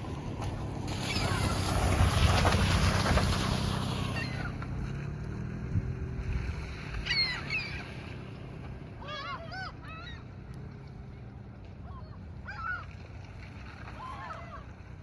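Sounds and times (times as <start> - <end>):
seagulls calling: 0.9 - 5.0, 6.4 - 10.7, 11.8 - 13.0, 13.8 - 14.8.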